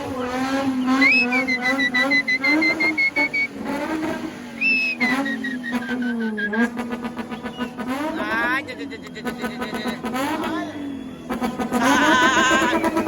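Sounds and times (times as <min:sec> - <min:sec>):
car engine revving: 0:00.0 - 0:13.0
tyres squealing: 0:00.6 - 0:03.6, 0:04.6 - 0:06.7, 0:07.3 - 0:13.0.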